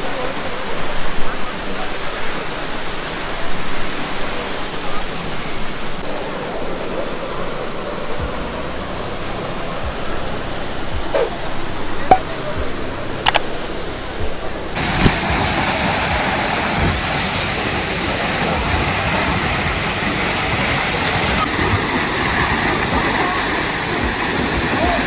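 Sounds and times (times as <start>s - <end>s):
waterfall roaring: 1.4s - 25.0s
sharp clicks: 13.3s - 13.5s.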